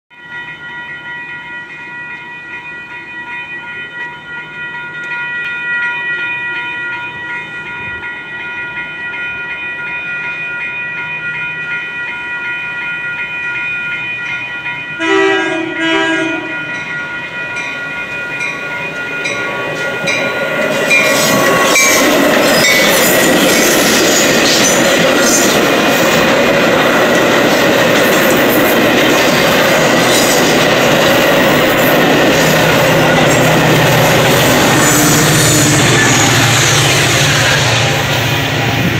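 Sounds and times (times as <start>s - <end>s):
crossing warning bell ringing: 0.1s - 38.9s
train passing: 0.2s - 38.9s
train horn blasts: 15.0s - 16.8s, 32.6s - 38.1s.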